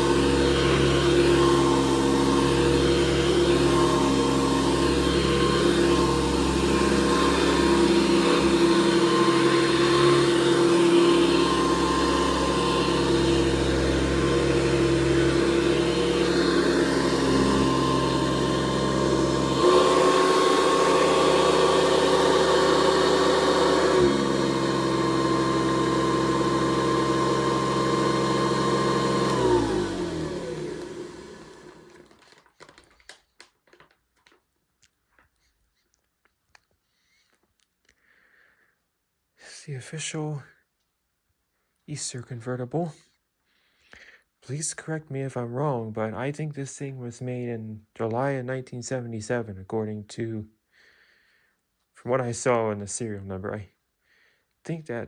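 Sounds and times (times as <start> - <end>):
vacuum cleaner running: 0.0 - 32.4
vacuum cleaner winding down: 0.0 - 32.5.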